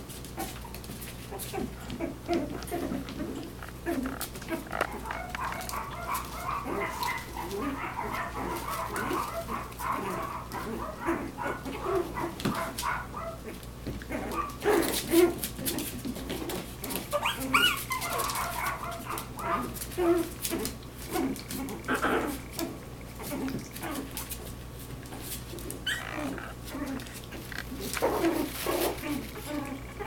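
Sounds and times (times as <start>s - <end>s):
scuffling clicks: 0.3s - 10.8s, 26.5s - 29.8s
puppies barking: 0.3s - 30.0s
puppies whimpering: 16.9s - 24.4s, 25.7s - 30.0s.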